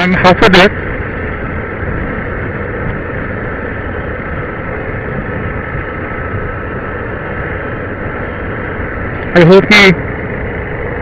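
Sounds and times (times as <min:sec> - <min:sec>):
faint steady whine: 0:00.0 - 0:11.0
motorcycle engine cruising: 0:00.0 - 0:11.0
wind rushing on microphone: 0:00.4 - 0:10.2.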